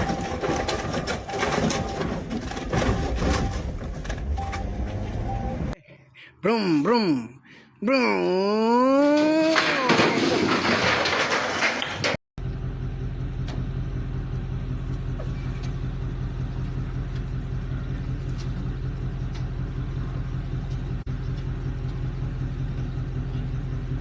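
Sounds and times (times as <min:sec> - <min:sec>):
vehicle engine humming: 0:00.0 - 0:05.8, 0:12.4 - 0:24.0.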